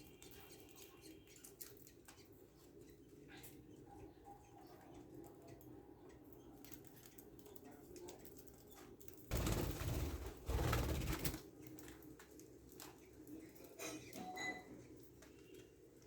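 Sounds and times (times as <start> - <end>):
chicks pattering and scratching: 0.0 - 16.0.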